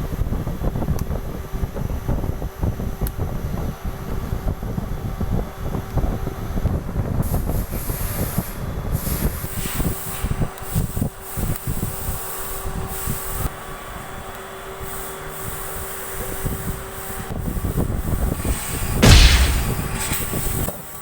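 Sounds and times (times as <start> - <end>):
hissing spray: 18.1 - 20.7.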